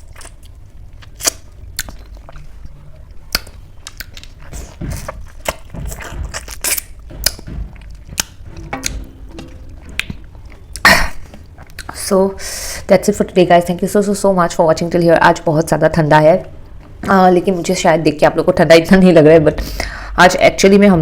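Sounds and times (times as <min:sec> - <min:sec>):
person chewing food: 0:00.0 - 0:12.0
mouth clicks and smacks: 0:09.9 - 0:12.0.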